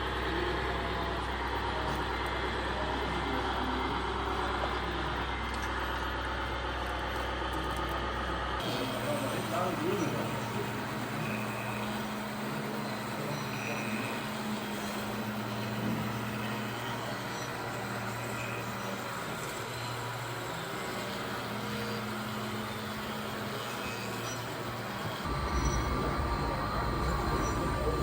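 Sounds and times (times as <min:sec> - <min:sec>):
model truck motor hum: 0:00.0 - 0:28.0
noisy hiss: 0:25.3 - 0:28.0.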